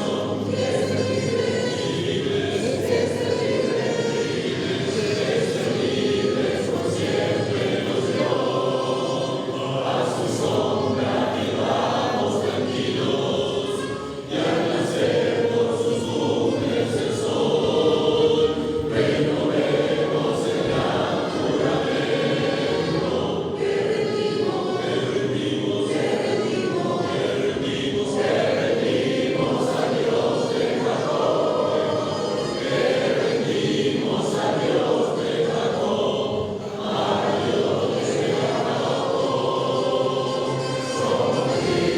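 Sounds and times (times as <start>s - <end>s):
choir singing with accompaniment: 0.0s - 41.9s.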